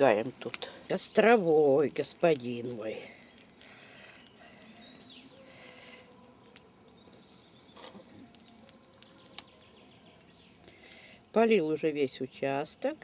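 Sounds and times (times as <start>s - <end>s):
bonfire crackling: 0.0s - 13.0s
distant birdsong: 2.6s - 12.7s.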